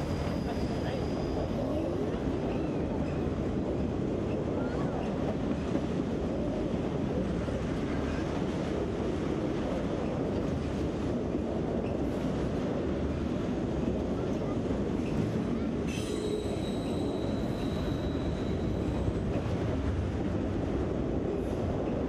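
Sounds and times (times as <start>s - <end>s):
train wheels rumbling on rails: 0.0s - 22.0s
high wheel squeal: 15.9s - 19.1s.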